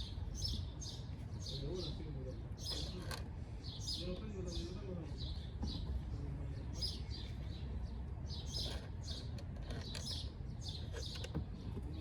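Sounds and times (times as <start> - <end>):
birds chirping: 3.6 - 12.0.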